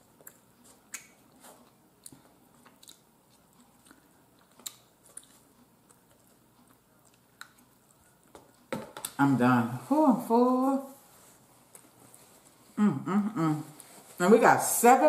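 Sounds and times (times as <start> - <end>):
person chewing: 0.0 - 9.2.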